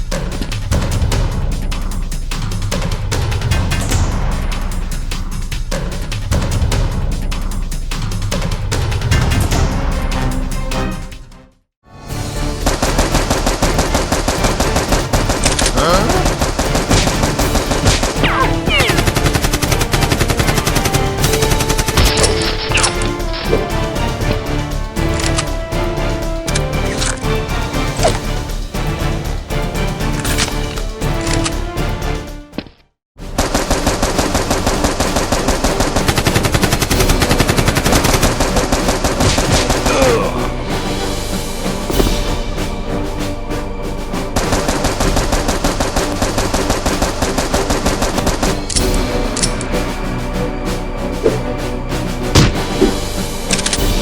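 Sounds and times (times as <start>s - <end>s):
background music: 0.0s - 54.0s
rapid automatic gunfire: 12.6s - 22.5s, 33.4s - 39.9s, 44.4s - 48.6s
machine-gun fire: 12.6s - 22.9s.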